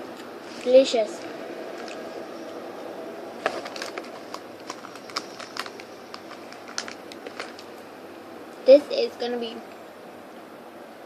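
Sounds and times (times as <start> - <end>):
chewing crunchy cookie: 0.2 - 2.2, 3.4 - 7.7.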